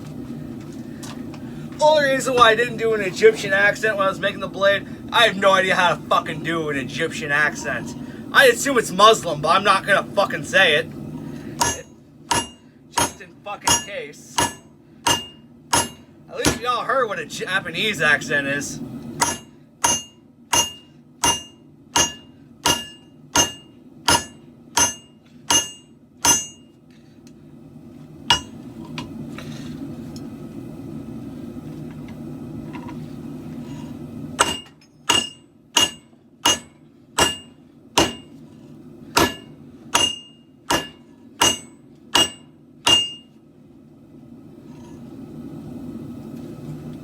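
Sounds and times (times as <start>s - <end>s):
hammer striking blade on anvil: 11.6s - 16.6s, 19.2s - 26.7s, 28.3s - 28.6s, 34.4s - 38.3s, 39.2s - 43.3s.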